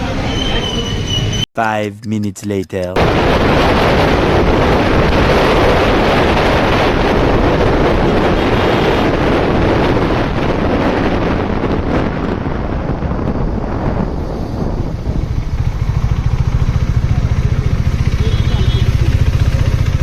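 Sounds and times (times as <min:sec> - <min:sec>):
wind noise on microphone: 0:03.0 - 0:17.9.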